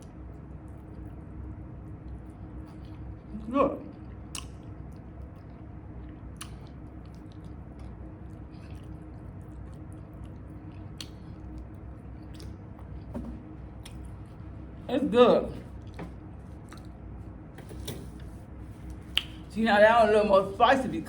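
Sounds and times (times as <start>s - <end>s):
low steady hum: 0.0s - 21.0s
wet mouth sounds: 3.8s - 13.0s, 18.9s - 19.5s
crunchy chewing: 3.9s - 13.1s, 15.7s - 17.4s.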